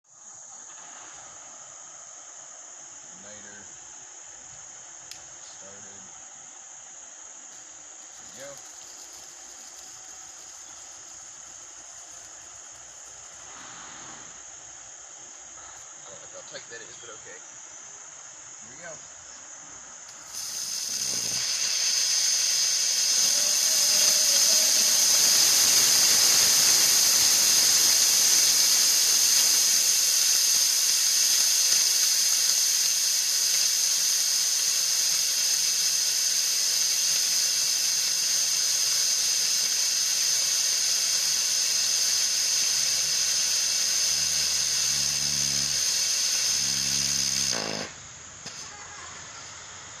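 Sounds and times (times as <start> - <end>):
rocket engine hissing burn: 7.4 - 17.4, 20.0 - 49.1.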